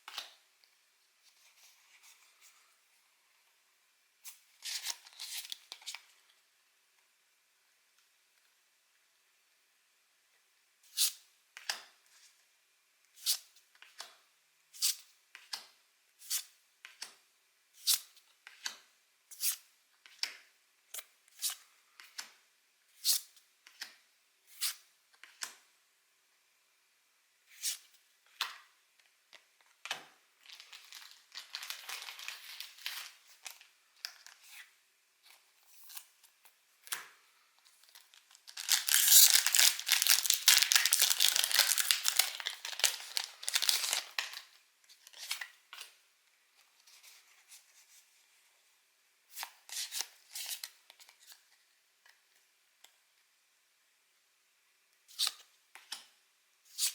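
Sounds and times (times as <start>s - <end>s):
foil wrapper crinkling: 30.4s - 33.6s, 37.8s - 44.5s.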